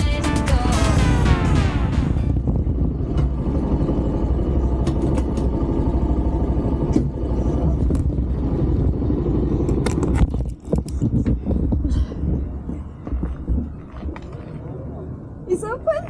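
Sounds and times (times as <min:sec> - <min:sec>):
motorcycle engine rumbling: 0:00.0 - 0:10.1.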